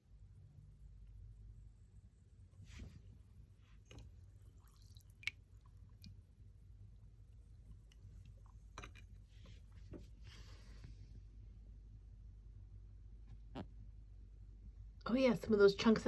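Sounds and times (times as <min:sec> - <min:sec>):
low room hum: 0:00.0 - 0:16.0
wet squishy clicks: 0:03.9 - 0:06.3.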